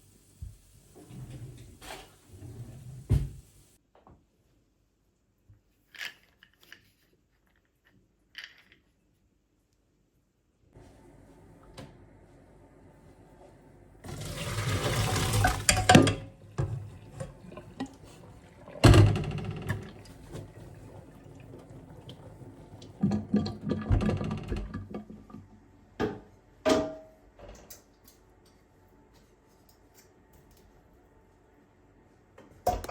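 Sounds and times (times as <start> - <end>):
water running from tap: 14.0 - 25.4
kitchenware clinking and clattering: 14.1 - 25.4, 32.7 - 32.9.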